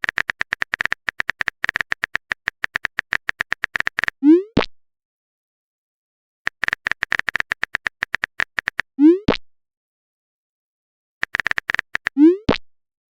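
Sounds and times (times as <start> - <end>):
phone keyboard typing clicks: 0.0 - 4.2, 6.5 - 8.9, 11.2 - 12.2.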